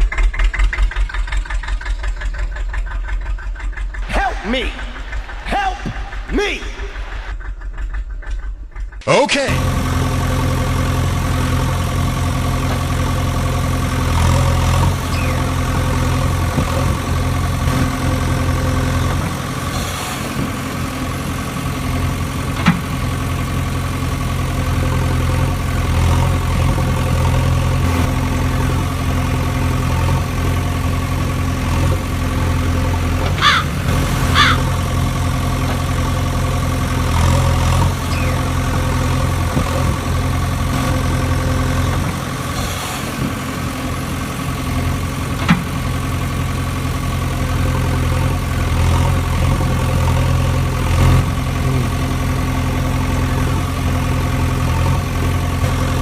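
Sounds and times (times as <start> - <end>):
tractor engine idling: 0.0 - 56.0
short high squeaks: 38.1 - 38.5.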